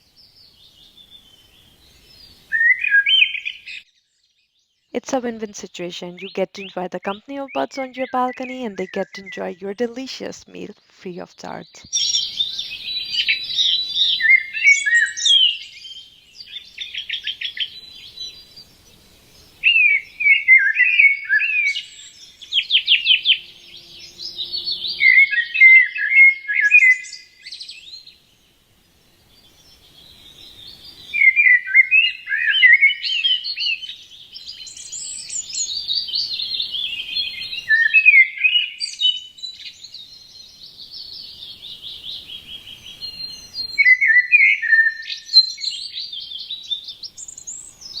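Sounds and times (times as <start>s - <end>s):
songbirds chirping and trilling: 21.0s - 26.1s, 26.8s - 48.0s.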